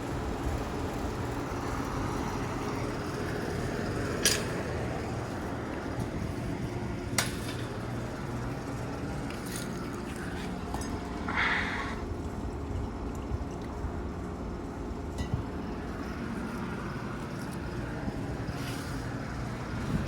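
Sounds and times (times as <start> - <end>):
air conditioner compressor hum: 0.0 - 20.0
fan rushing: 0.0 - 20.0.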